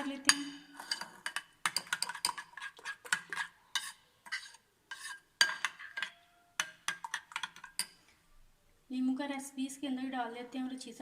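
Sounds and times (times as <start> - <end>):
spoon scraping and clinking bowl: 0.0 - 8.1.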